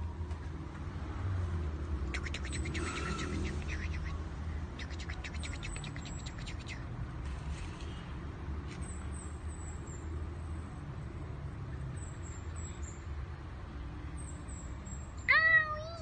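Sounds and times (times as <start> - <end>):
small birds chirping: 2.0 - 7.0, 11.7 - 13.2.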